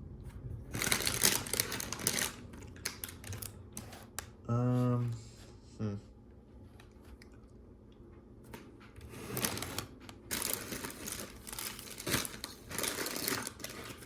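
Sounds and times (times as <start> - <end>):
plastic bags crinkling: 0.7 - 3.8, 9.4 - 14.0.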